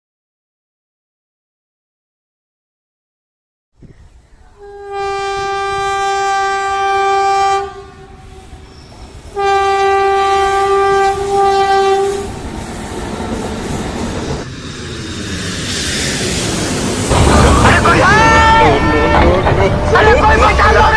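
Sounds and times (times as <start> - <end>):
train running: 4.4 - 20.9
train horn blasts: 4.6 - 8.6, 9.3 - 12.4, 18.2 - 20.1.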